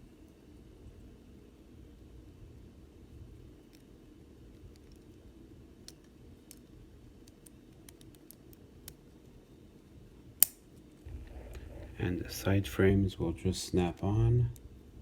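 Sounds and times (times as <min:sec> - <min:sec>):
low room hum: 0:00.0 - 0:15.0
small plastic parts clicking: 0:05.8 - 0:09.0.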